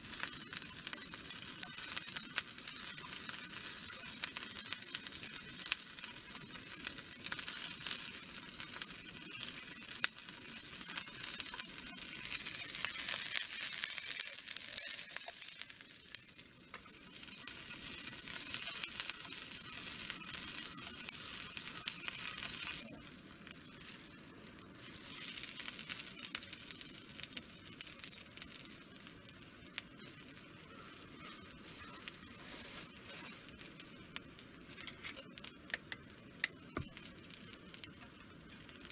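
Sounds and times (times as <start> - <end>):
food sizzling in a pan: 0.0 - 38.9.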